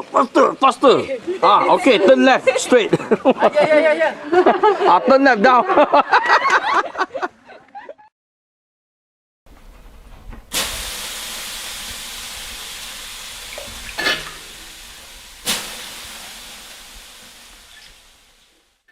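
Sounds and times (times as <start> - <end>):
steady hiss: 9.5 - 18.9.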